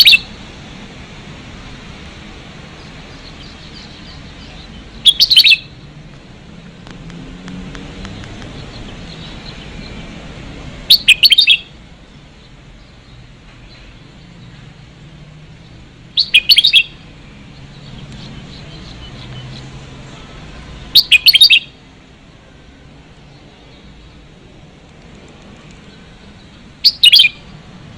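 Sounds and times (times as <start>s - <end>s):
birds chirping: 0.0s - 3.4s.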